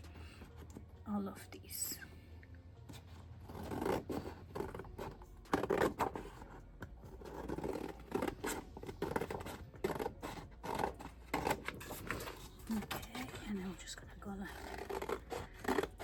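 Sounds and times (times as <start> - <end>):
scissors snipping paper: 14.5 - 16.0.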